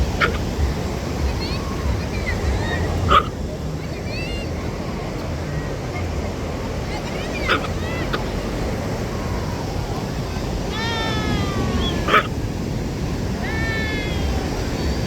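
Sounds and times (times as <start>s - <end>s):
wind and surf rumble: 0.0s - 15.0s
dog yelping: 0.2s - 0.5s, 3.0s - 3.4s, 7.3s - 8.3s, 11.0s - 12.4s
dog whining: 3.1s - 3.3s, 11.9s - 12.4s.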